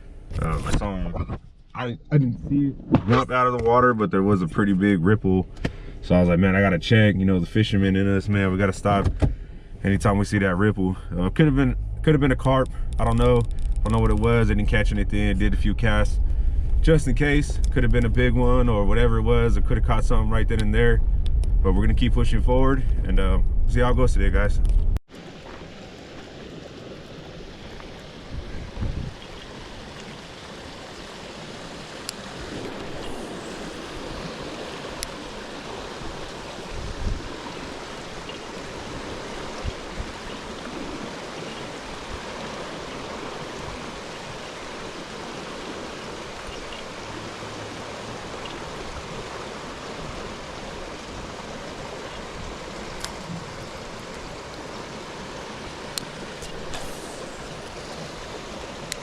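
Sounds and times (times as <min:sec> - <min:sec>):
moving water: 0:00.0 - 0:59.0
wind: 0:00.0 - 0:59.0
wind buffeting microphone: 0:27.6 - 0:30.5, 0:31.9 - 0:54.4
faint sharp clicks: 0:53.0 - 0:53.2, 0:55.9 - 0:57.4.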